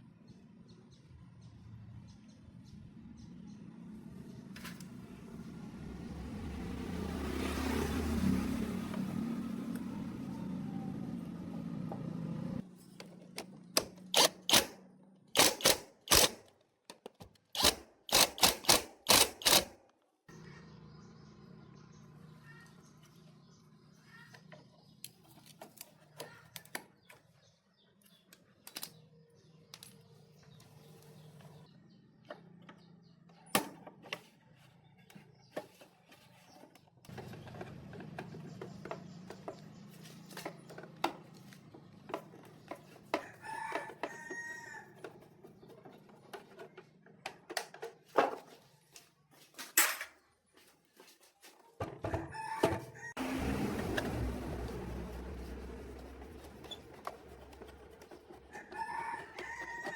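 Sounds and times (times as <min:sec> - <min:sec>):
rooster crowing: 0:43.2 - 0:45.0, 0:52.2 - 0:53.4, 0:58.5 - 0:59.9.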